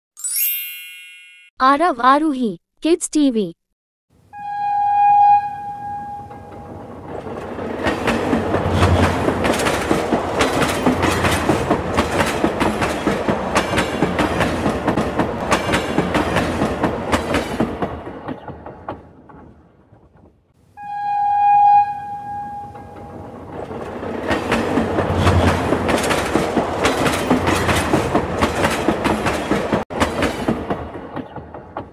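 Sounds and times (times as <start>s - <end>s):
train horn: 4.3s - 6.8s, 20.8s - 23.2s
wheels clacking over rail joints: 6.4s - 20.3s, 22.7s - 31.9s.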